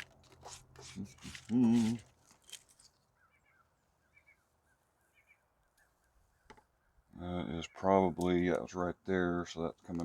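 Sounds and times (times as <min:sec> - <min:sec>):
faint bird chirps: 0:03.0 - 0:07.9.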